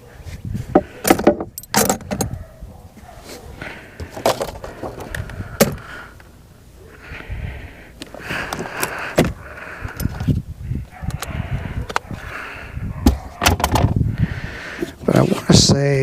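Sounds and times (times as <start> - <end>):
metal screws clinking and rattling: 1.1 - 2.3.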